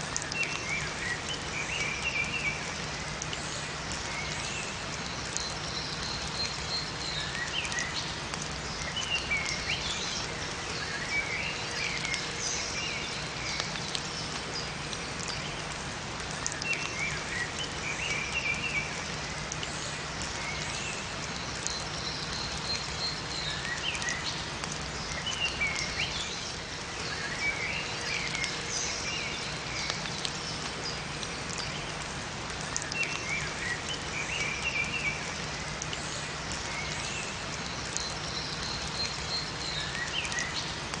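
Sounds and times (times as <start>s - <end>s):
steady rain in forest: 0.0s - 41.0s
songbirds chirping: 0.2s - 41.0s.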